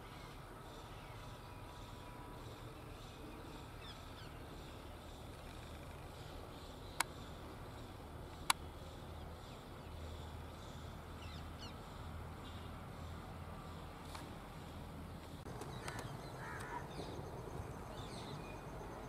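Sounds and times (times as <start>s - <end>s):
sharp clicks: 8.3s - 8.6s, 15.5s - 16.7s.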